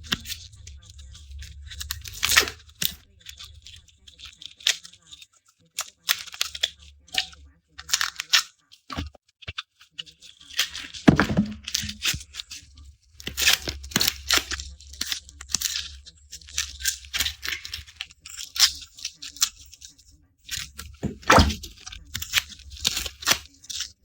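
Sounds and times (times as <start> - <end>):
garlic skins crackling and tearing: 5.8 - 8.5, 10.4 - 19.6, 20.5 - 24.0.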